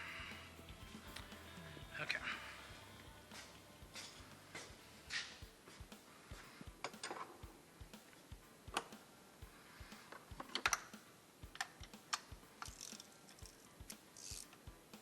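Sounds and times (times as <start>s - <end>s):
small hand tools clicking and tapping: 6.3s - 7.4s, 9.8s - 14.6s.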